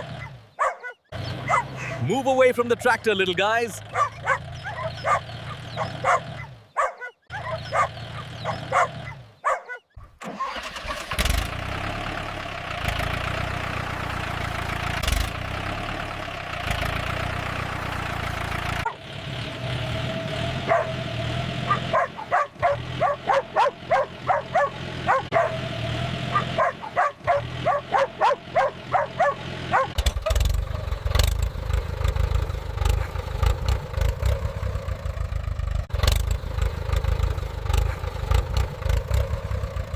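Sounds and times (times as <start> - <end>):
dogs barking: 0.0 - 2.1, 3.8 - 10.0, 18.8 - 19.1, 20.6 - 30.0
tractor engine running: 0.0 - 39.9.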